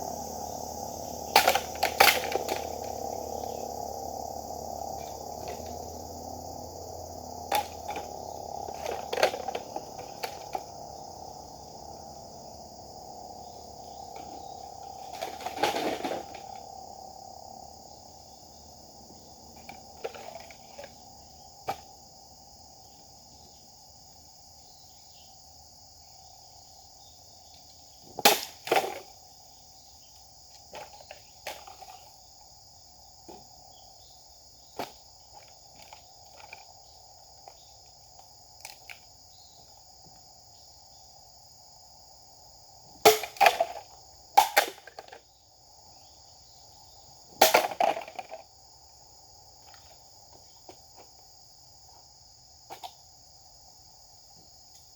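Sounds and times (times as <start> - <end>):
insect buzz: 0.0 - 54.9.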